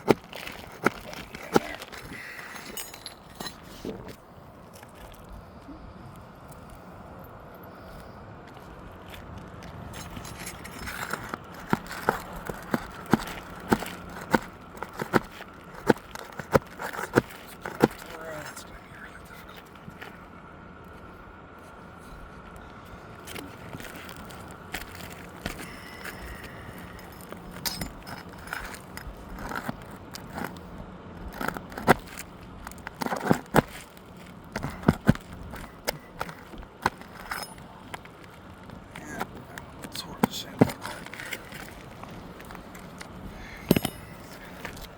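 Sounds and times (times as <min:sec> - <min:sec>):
shingle knocking and crackling: 0:00.0 - 0:04.1, 0:10.0 - 0:18.2, 0:23.7 - 0:44.9
pry bar scraping under shingles: 0:00.0 - 0:04.2, 0:09.8 - 0:18.7, 0:23.2 - 0:44.9.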